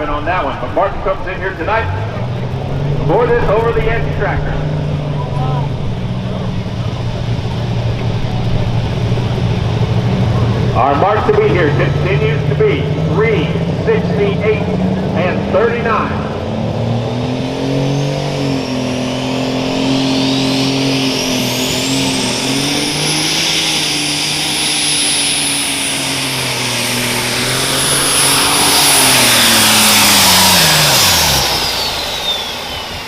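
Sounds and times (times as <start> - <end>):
tractor engine running hard: 0.0 - 33.0
turbocharger whine: 0.0 - 33.0.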